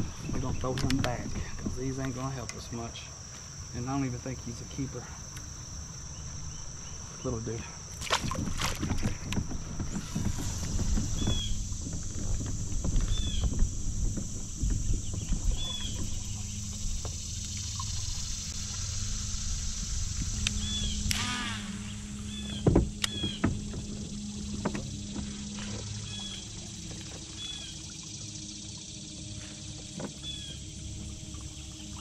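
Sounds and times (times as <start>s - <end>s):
knocks and rattles of kayak gear: 0.0s - 4.0s, 7.8s - 18.6s, 22.0s - 28.0s, 29.0s - 32.0s
steady high hiss: 0.0s - 8.2s, 9.0s - 32.0s.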